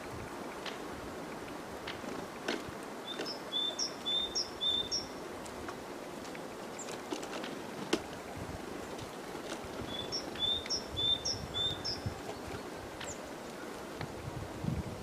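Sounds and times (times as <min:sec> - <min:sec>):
songbird two-note call: 0:03.1 - 0:05.1, 0:09.9 - 0:12.0.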